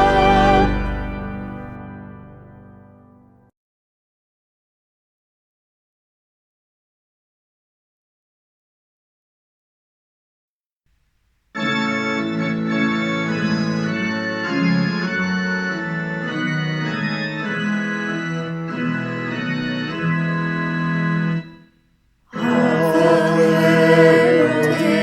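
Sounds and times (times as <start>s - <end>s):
organ playing chords: 0.0s - 3.3s, 11.6s - 21.7s, 22.3s - 25.0s.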